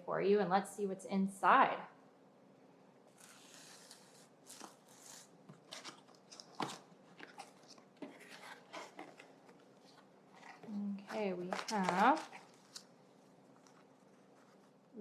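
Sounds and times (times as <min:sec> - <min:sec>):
paper packaging rustling: 0:03.1 - 0:14.9.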